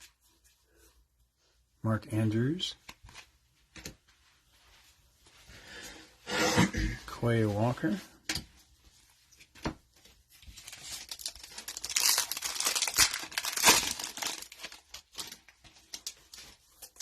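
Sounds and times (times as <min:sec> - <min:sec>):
plastic wrapper tearing and crinkling: 0:10.5 - 0:17.0.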